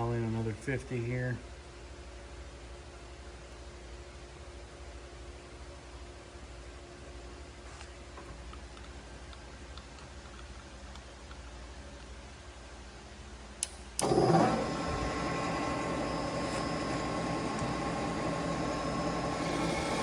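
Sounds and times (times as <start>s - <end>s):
lathe motor humming and whining: 14.0s - 20.0s.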